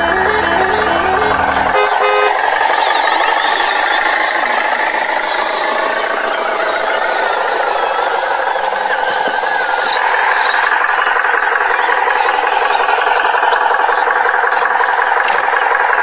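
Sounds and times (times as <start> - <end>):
short musical horn tune: 0.0 - 2.4
vehicle engine running loudly: 0.0 - 16.0.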